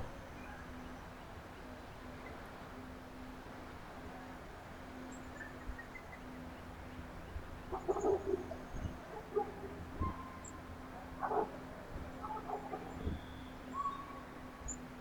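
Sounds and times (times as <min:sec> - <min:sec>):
faint high bird chirps: 0:13.0 - 0:14.9.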